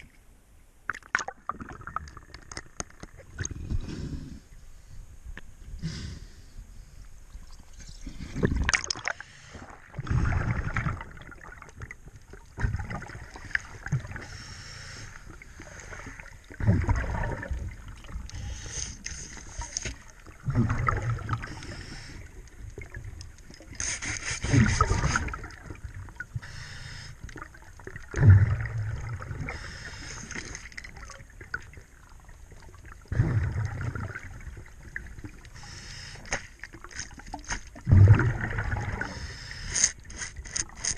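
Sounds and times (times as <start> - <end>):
exhaled bubbles rumbling: 0.9 - 4.4, 7.3 - 14.3, 15.3 - 18.4, 20.0 - 23.6, 24.5 - 26.4, 27.3 - 29.7, 30.8 - 35.6, 36.6 - 39.3
regulator hissing inhale: 3.5 - 5.0, 5.8 - 7.0, 9.2 - 9.9, 14.2 - 16.2, 18.3 - 19.9, 21.4 - 22.4, 26.4 - 27.2, 29.4 - 30.7, 35.6 - 36.6, 39.0 - 40.3.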